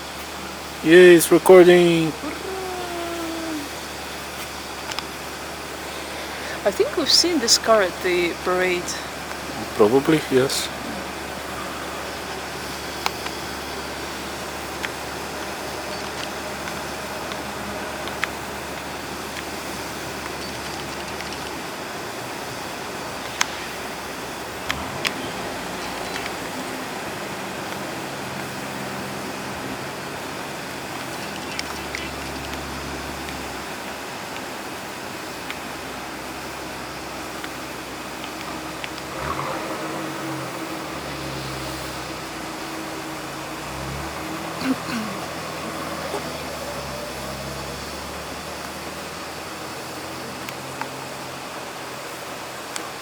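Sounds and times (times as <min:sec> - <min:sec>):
car engine idling: 0:00.0 - 0:53.0
traffic noise: 0:00.0 - 0:53.0
small clicks: 0:20.2 - 0:21.7, 0:30.9 - 0:33.5.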